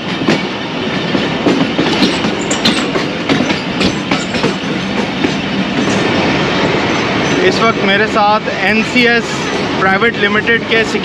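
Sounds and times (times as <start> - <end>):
train wheels clacking over rail joints: 0.0 - 8.0
train running rumble: 0.0 - 11.0.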